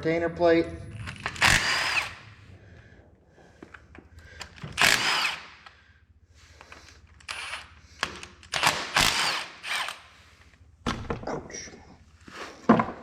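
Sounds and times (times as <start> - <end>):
cordless power driver whining: 1.1 - 2.2, 4.4 - 5.5.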